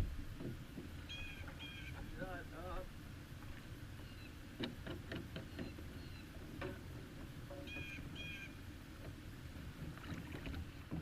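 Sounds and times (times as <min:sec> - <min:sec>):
wind and water rumble: 0:00.0 - 0:11.0
bird calls: 0:00.8 - 0:02.2, 0:03.9 - 0:04.5, 0:05.1 - 0:06.4, 0:07.5 - 0:08.6.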